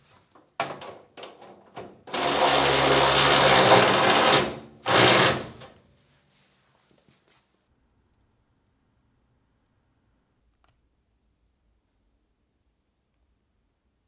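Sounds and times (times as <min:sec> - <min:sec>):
metalworking power tool: 0:02.1 - 0:05.7.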